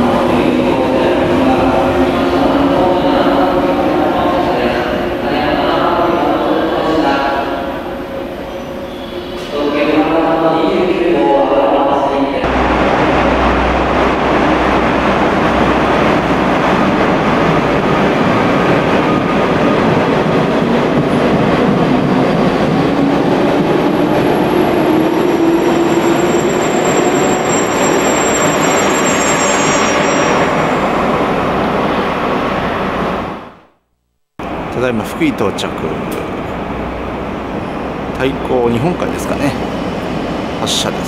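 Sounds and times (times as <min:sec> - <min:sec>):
electric train rumbling: 0:00.0 - 0:33.6, 0:34.4 - 0:41.0
high squeal: 0:08.2 - 0:09.6, 0:25.3 - 0:31.0.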